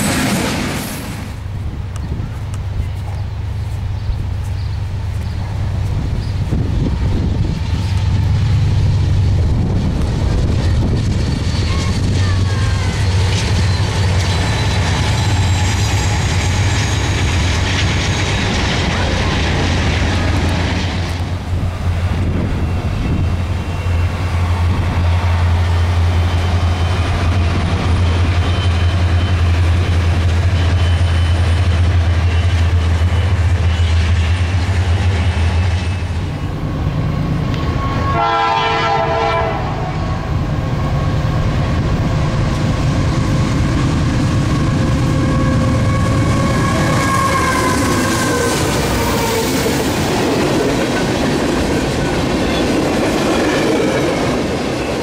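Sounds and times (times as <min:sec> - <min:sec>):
locomotive passing close by: 0:00.0 - 0:55.0
rail cars rumbling and clacking: 0:00.0 - 0:55.0
diesel locomotive horn: 0:22.3 - 0:41.6, 0:44.3 - 0:50.1.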